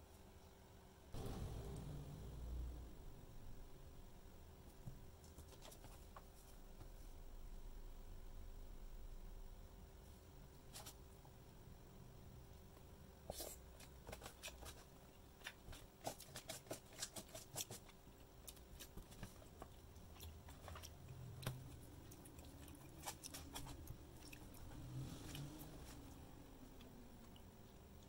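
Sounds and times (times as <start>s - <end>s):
person chewing: 18.4s - 26.2s.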